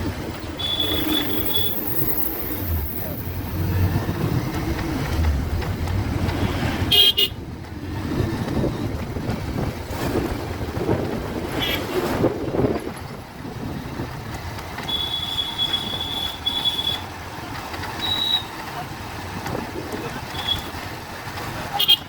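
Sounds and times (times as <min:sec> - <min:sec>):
motorcycle rumble: 0:00.0 - 0:22.0
road and traffic noise: 0:00.0 - 0:22.0
vehicle horn toots: 0:00.6 - 0:02.2, 0:06.9 - 0:07.4, 0:14.8 - 0:17.0.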